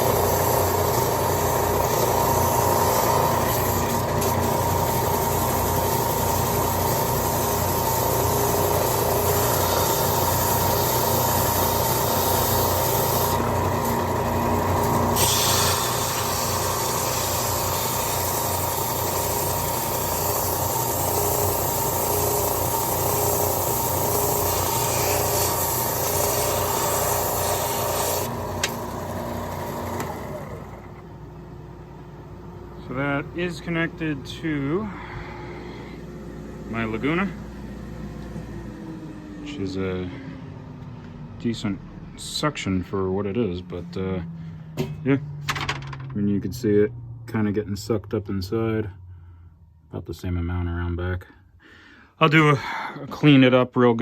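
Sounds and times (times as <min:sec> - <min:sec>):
wood rubbing on sanding belt: 0:00.0 - 0:14.0, 0:15.2 - 0:28.4
belt sander running: 0:00.0 - 0:42.4
dust collector running: 0:00.0 - 0:46.1.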